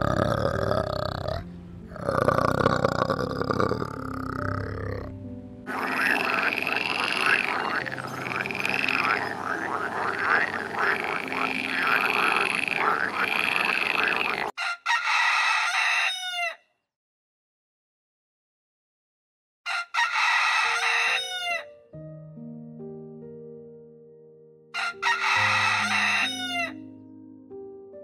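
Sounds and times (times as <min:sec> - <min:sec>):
frog croaking: 0:00.0 - 0:14.6
rooster crowing: 0:05.7 - 0:16.6, 0:19.7 - 0:21.7, 0:24.8 - 0:26.8.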